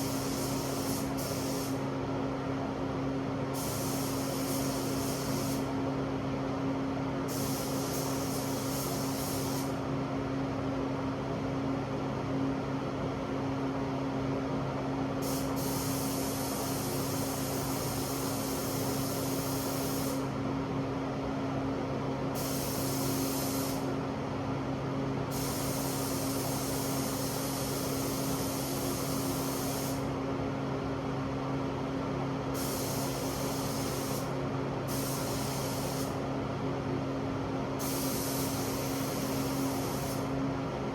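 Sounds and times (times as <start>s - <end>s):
air spray gun hissing: 0.0s - 1.8s, 3.6s - 5.8s, 7.3s - 9.8s, 15.2s - 20.3s, 22.4s - 23.9s, 25.3s - 30.1s, 32.5s - 36.2s, 37.8s - 40.4s.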